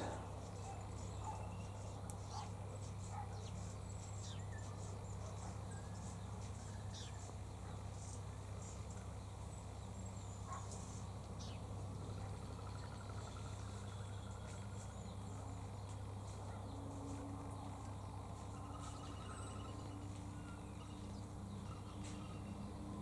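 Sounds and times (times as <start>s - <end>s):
steady low hum: 0.0s - 1.9s.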